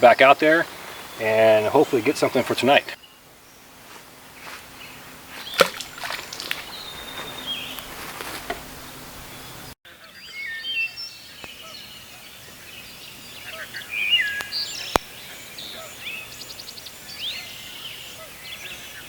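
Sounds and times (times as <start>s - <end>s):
birds singing and calling: 0.0s - 3.6s, 4.4s - 19.0s
rustling: 5.3s - 9.4s.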